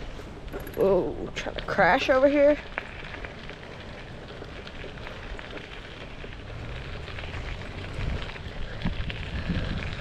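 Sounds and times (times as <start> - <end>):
tyres crackling over path: 0.0 - 10.0
low wind rumble on microphone: 2.6 - 10.0.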